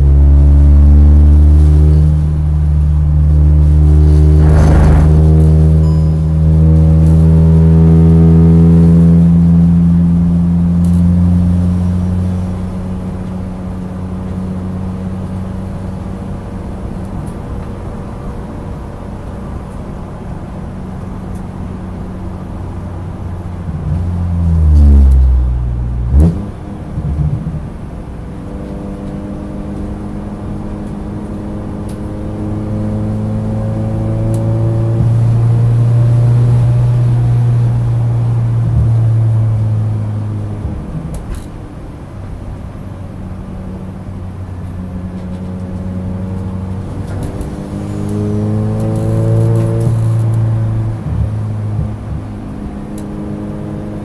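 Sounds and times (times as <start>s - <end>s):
racing car engine at full throttle: 0.0s - 54.0s
sharp bang: 4.3s - 6.1s.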